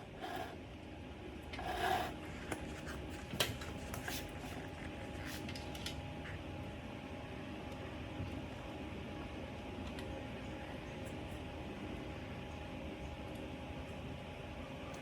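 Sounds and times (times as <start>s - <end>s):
scrape: 0.0s - 0.6s, 1.6s - 5.4s
steady low hum: 0.0s - 15.0s.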